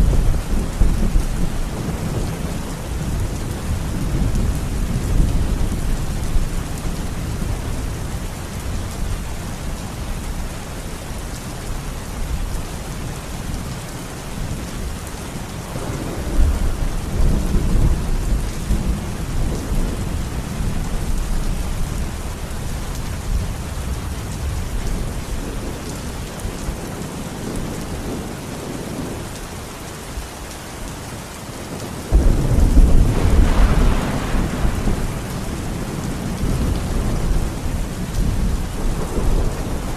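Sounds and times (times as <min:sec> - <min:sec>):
steady rain falling: 0:00.0 - 0:39.9
rolling thunder: 0:32.1 - 0:39.9.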